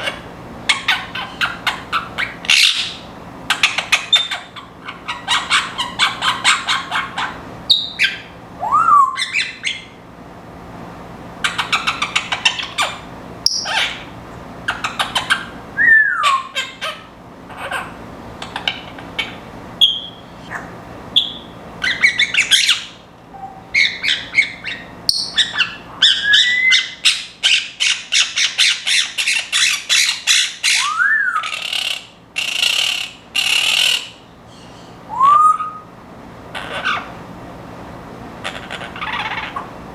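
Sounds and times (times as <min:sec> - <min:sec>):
parrots chattering and squawking: 0:00.0 - 0:10.0, 0:11.4 - 0:35.9, 0:36.5 - 0:37.2, 0:38.4 - 0:39.8
parrot whistles gliding in pitch: 0:05.3 - 0:09.9, 0:15.8 - 0:16.6, 0:19.8 - 0:20.5, 0:21.2 - 0:32.0, 0:34.6 - 0:35.9.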